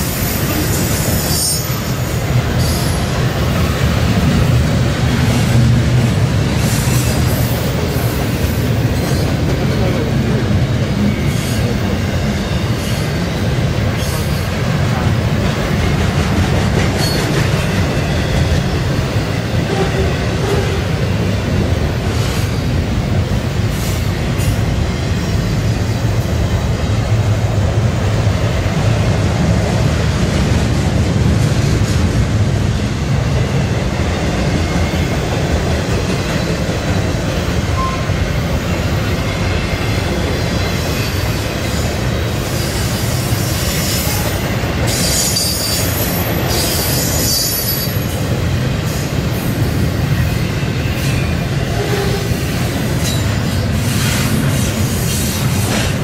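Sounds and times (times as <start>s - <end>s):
train wheels rumbling on rail: 0.0s - 56.0s
high-pitched wheel squeal: 44.9s - 48.1s.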